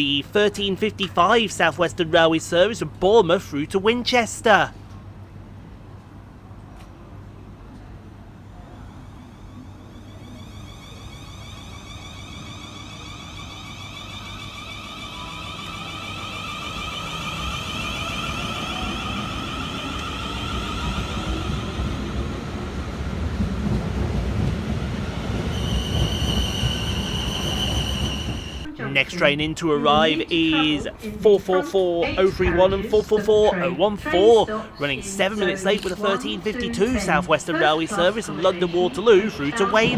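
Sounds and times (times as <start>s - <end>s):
electric train motors whining: 8.7s - 31.1s
steady high ringing tone: 9.2s - 21.8s.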